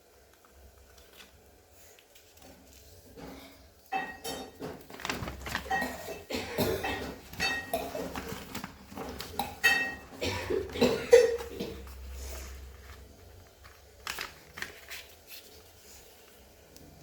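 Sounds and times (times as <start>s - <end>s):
paper rustling and creasing: 0.2s - 3.8s, 4.6s - 6.3s, 6.9s - 17.0s.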